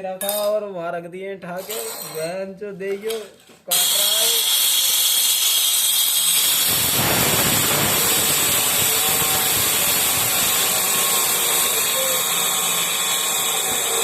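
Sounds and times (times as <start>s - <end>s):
power saw cutting stone: 3.7s - 14.0s.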